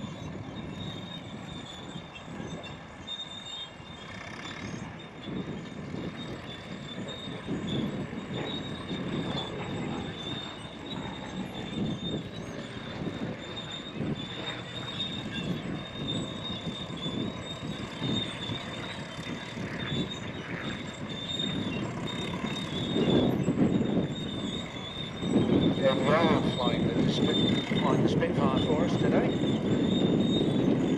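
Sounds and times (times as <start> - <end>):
crawler tractor running: 0.0 - 30.9
steel tracks squealing: 0.0 - 30.9
tracks clanking: 6.5 - 30.9.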